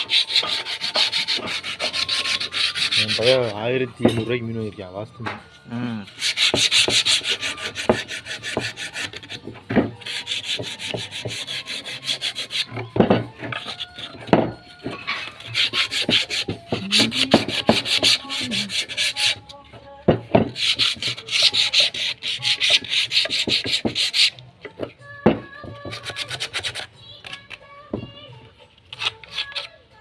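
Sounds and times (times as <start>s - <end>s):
sandpaper rubbing on wood: 0.0s - 3.6s, 6.0s - 12.8s, 15.1s - 19.4s, 20.6s - 24.3s, 25.8s - 26.9s.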